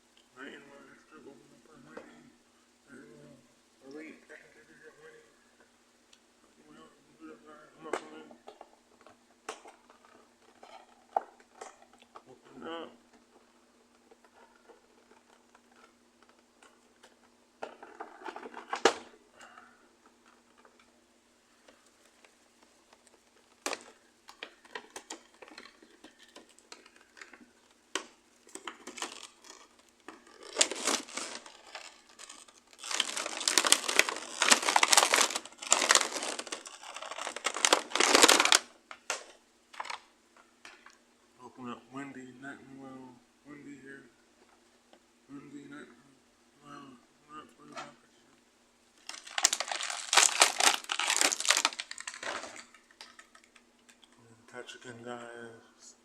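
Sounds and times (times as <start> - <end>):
packaging crinkling and tearing: 21.7 - 40.1, 49.0 - 54.1.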